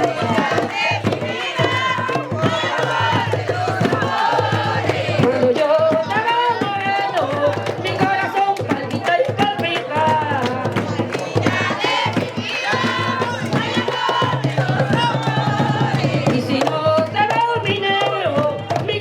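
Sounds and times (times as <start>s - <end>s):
high voices singing: 0.0s - 7.7s, 9.5s - 16.8s
hand drums beating: 0.0s - 19.0s.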